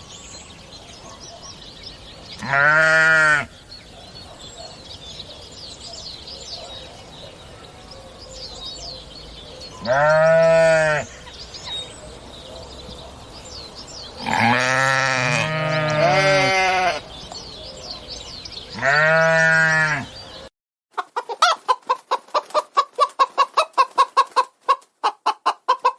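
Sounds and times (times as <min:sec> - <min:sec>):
livestock bleating: 0:02.4 - 0:03.5, 0:09.8 - 0:11.2, 0:14.2 - 0:17.1, 0:18.7 - 0:20.1
chicken clucking: 0:20.9 - 0:25.9.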